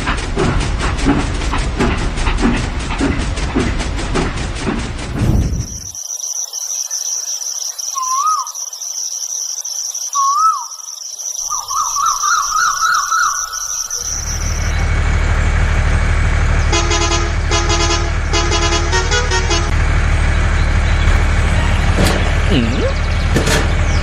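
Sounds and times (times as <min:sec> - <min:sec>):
tractor engine running: 0:00.0 - 0:06.0, 0:11.4 - 0:24.0
crickets trilling: 0:05.2 - 0:14.8
multi-tone horn honking: 0:16.6 - 0:19.8.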